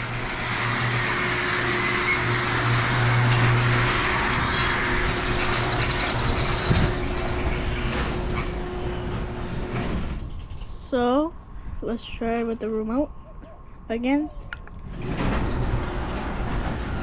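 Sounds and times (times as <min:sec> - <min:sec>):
garage door opener rumbling: 0:00.0 - 0:10.8, 0:14.8 - 0:17.0
low hum: 0:00.0 - 0:17.0.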